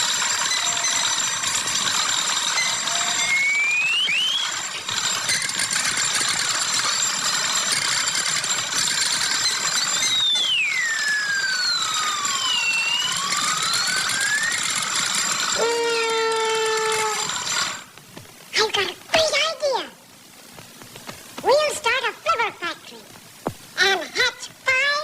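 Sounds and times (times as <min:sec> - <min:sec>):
constant harsh noise: 0:00.0 - 0:25.0
sliding whistle: 0:00.2 - 0:06.4, 0:09.2 - 0:17.8.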